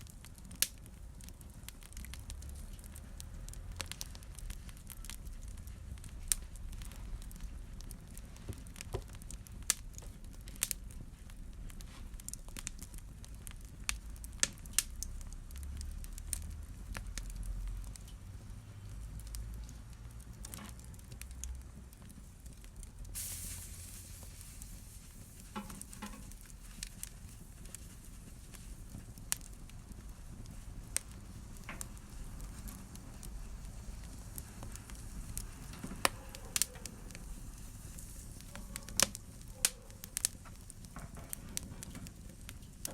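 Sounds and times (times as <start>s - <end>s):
fire popping and crackling: 0.0s - 42.9s
flames rumbling: 0.0s - 42.9s
hiss: 23.1s - 27.2s.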